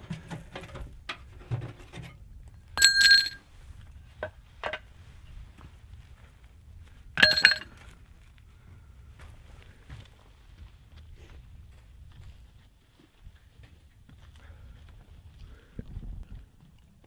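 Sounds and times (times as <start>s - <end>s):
loud metallic clanks: 7.2s - 7.7s.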